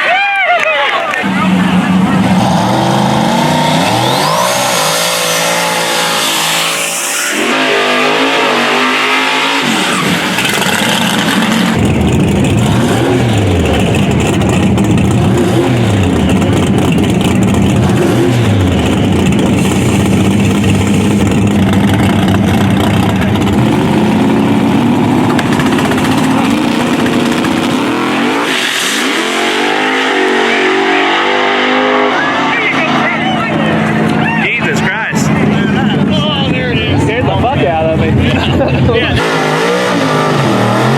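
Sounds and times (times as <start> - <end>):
race car engines at full throttle: 0.0 - 40.9
engine revving: 1.1 - 40.9.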